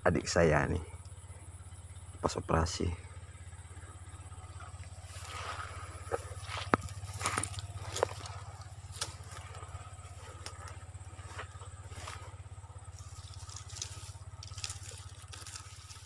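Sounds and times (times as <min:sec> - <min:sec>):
pulsing low hum: 0:00.0 - 0:16.0
light rustles and clicks: 0:05.1 - 0:16.0.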